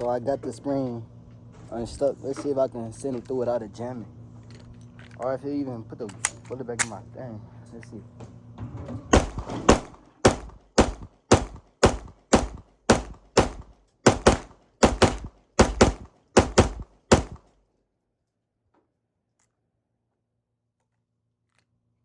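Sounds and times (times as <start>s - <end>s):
pistol shots: 9.2s - 17.5s.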